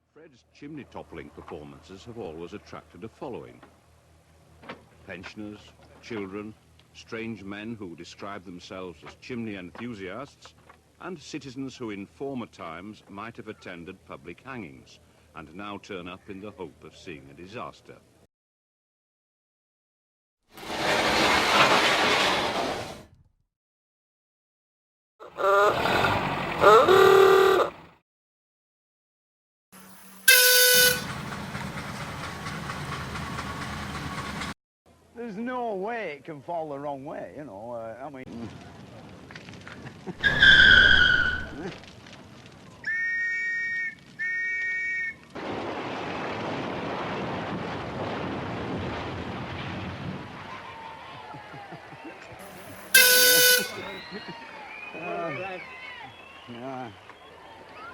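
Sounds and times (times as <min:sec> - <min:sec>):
brick chimney collapsing crash: 0:20.6 - 0:23.0, 0:45.4 - 0:50.5
steam whistle long blasts: 0:26.6 - 0:27.7, 0:30.2 - 0:31.2, 0:52.5 - 0:54.0
short shrill whistle: 0:30.0 - 0:31.1, 0:40.2 - 0:41.6, 0:52.4 - 0:55.1.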